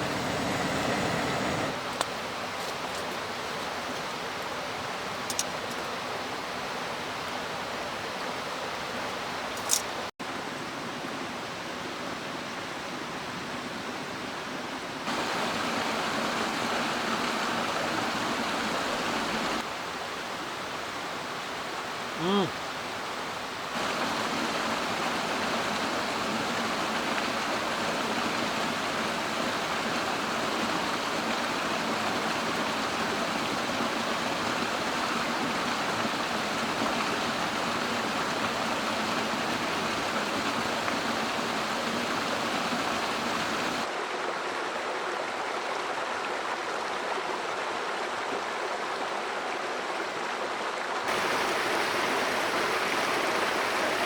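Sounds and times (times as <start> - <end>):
mountain stream water flowing: 0.0 - 54.0.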